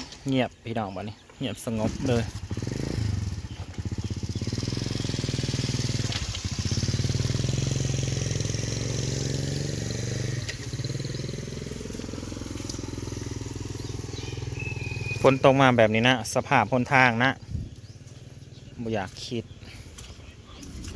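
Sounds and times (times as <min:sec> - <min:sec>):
motorcycle engine running: 0:01.7 - 0:20.9.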